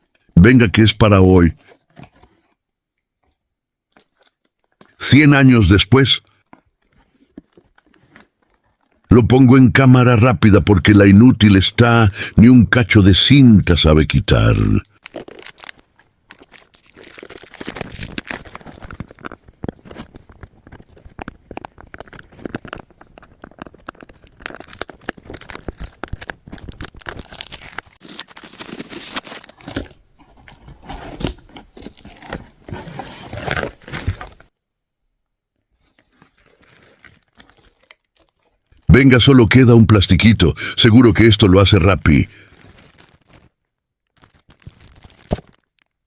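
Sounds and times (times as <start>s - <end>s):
plastic packaging crinkling: 3.9s - 5.0s, 6.3s - 9.1s, 14.4s - 34.5s, 35.7s - 38.9s, 41.2s - 46.0s
tape tearing: 14.9s - 34.5s, 35.8s - 38.8s, 44.1s - 46.0s.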